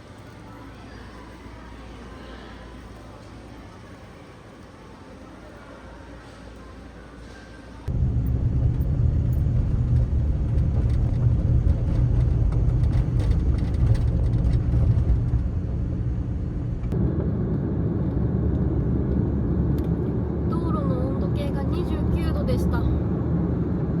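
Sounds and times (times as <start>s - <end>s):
van engine and tyre rumble: 7.8s - 24.0s.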